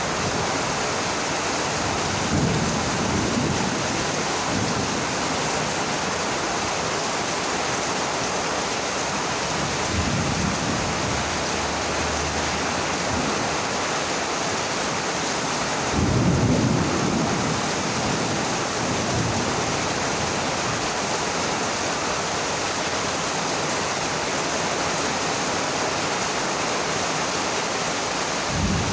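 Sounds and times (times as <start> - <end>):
heavy rain falling: 0.0 - 28.9
low thunder rolls: 9.6 - 13.7, 28.5 - 28.9.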